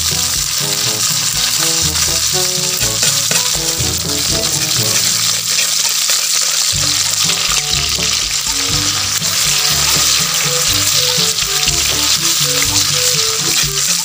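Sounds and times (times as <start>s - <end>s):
background music: 0.0s - 14.0s
food sizzling in hot oil: 0.0s - 14.0s
metal ladle stirring: 0.0s - 14.0s.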